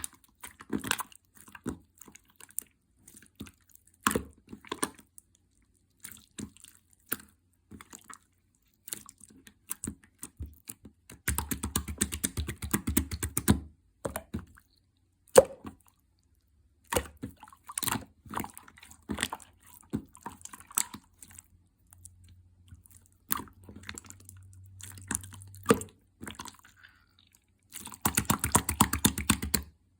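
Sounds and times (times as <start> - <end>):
rapid crackling of slime: 16.8 - 26.8, 27.4 - 29.8.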